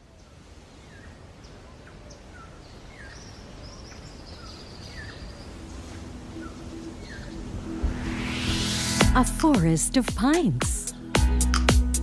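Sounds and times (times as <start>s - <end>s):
steady background hiss: 0.0s - 10.0s
birds chirping: 0.8s - 7.9s.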